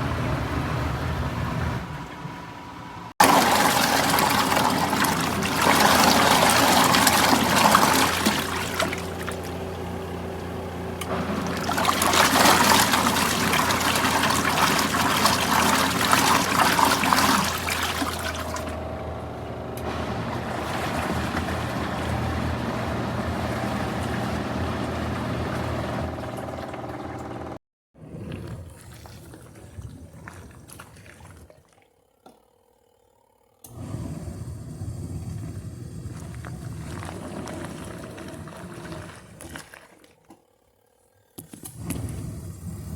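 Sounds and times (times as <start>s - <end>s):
washing machine running hum: 0.0s - 32.4s, 33.5s - 42.9s
water pouring and splashing: 3.2s - 10.5s, 11.1s - 18.8s, 20.2s - 22.6s, 28.0s - 32.0s, 35.1s - 40.4s.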